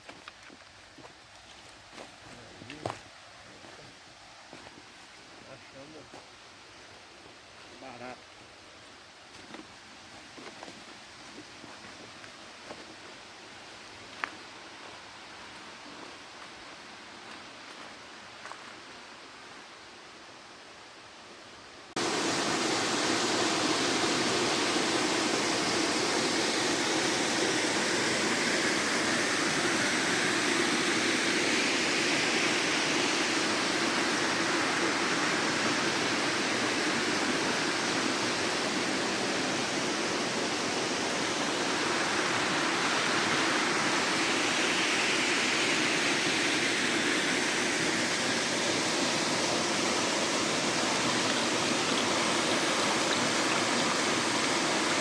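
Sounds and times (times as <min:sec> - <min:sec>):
waterfall rushing: 0:22.0 - 0:55.0.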